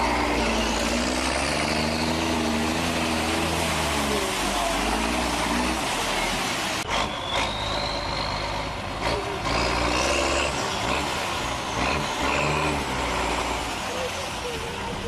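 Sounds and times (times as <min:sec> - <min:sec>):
diesel truck engine running hard: 0:00.0 - 0:15.0.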